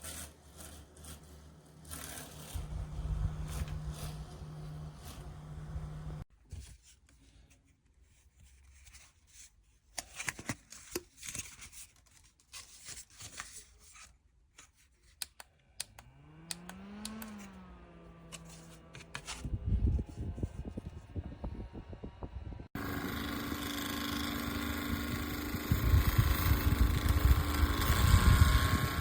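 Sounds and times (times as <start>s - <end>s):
desk fan motor hum: 0.0s - 6.2s, 16.0s - 29.0s.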